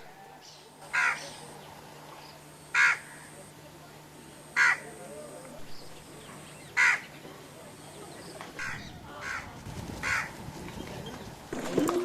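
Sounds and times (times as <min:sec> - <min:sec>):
bird calling: 0:05.8 - 0:07.3, 0:08.1 - 0:11.3.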